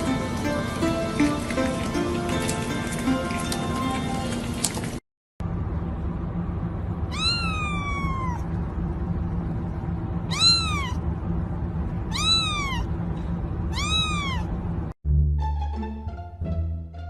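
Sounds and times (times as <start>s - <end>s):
string music: 0.0s - 4.4s, 15.0s - 17.0s
steady low hum: 5.4s - 15.0s
cat meowing: 7.1s - 8.6s, 10.3s - 11.0s, 12.1s - 12.9s, 13.7s - 14.6s.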